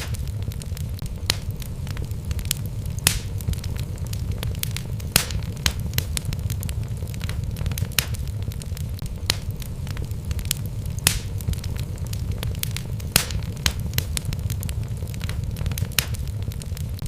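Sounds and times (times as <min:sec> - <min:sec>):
logs crackling and popping: 0:00.0 - 0:17.0
low rumble of flames: 0:00.0 - 0:17.0.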